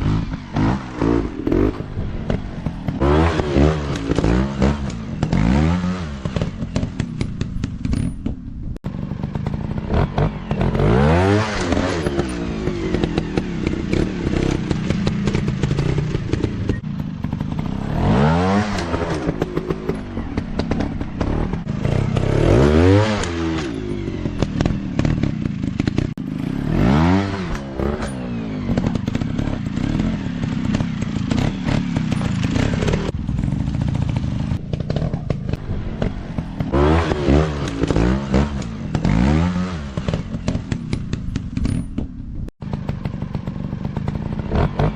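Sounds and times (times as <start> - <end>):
motocross bike engines revving: 0.0 - 7.9, 8.9 - 41.9, 42.6 - 44.9.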